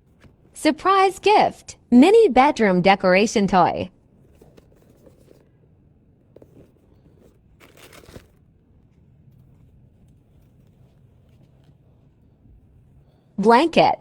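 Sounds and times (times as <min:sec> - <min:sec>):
packaging crinkling: 0:04.0 - 0:12.2.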